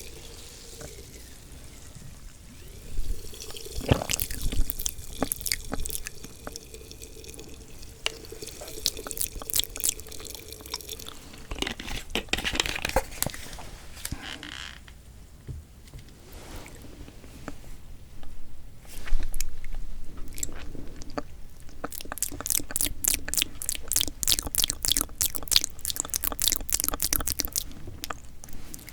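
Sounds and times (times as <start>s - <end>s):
wet chewing and slurping: 2.7s - 11.8s, 18.9s - 28.9s.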